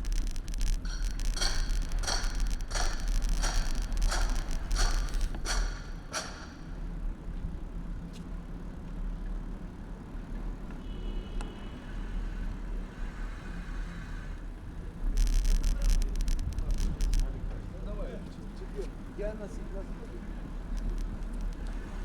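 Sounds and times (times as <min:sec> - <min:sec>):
bicycle clattering over bumps: 0:00.0 - 0:07.2, 0:15.4 - 0:22.0
road and wind rumble: 0:00.0 - 0:10.9, 0:11.7 - 0:22.0
traffic: 0:00.0 - 0:22.0.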